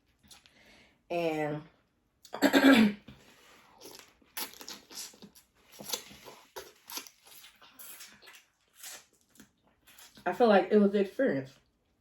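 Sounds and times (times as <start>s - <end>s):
smacking and chewing food: 3.1s - 10.3s.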